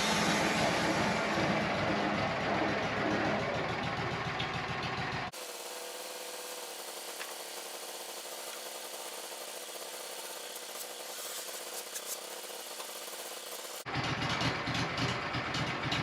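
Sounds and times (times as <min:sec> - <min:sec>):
band sawmill hiss: 0:05.3 - 0:13.9.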